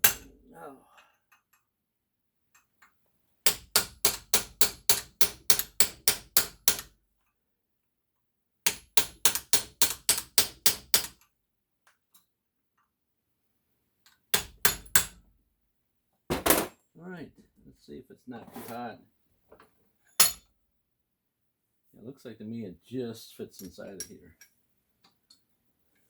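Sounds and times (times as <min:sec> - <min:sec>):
hammer striking metal fitting: 0:00.0 - 0:00.3.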